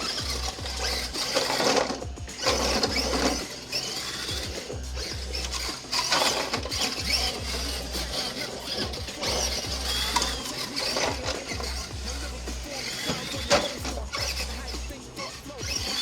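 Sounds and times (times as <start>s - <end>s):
electric motor and drivetrain running: 0.0s - 16.0s
gear whine: 0.0s - 16.0s.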